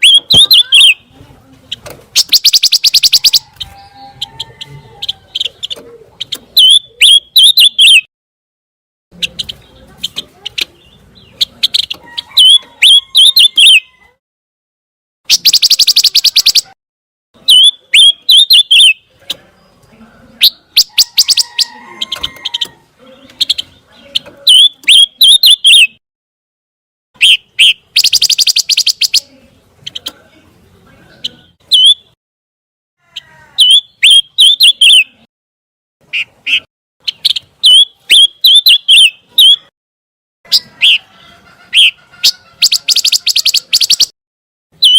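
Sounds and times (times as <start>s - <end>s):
bird chirping: 0.0s - 8.1s, 9.2s - 14.1s, 15.3s - 16.8s, 17.4s - 26.0s, 27.2s - 32.2s, 33.6s - 35.3s, 36.0s - 39.7s, 40.5s - 44.1s
buzzy rattling bird trill: 2.1s - 4.4s, 15.3s - 16.8s, 27.2s - 29.3s, 42.6s - 44.1s.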